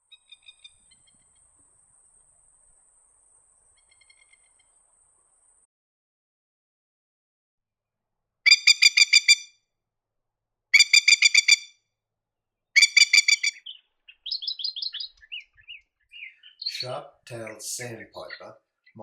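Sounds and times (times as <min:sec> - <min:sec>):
lapwing calling: 0:08.5 - 0:09.5, 0:10.8 - 0:11.7, 0:12.8 - 0:19.0.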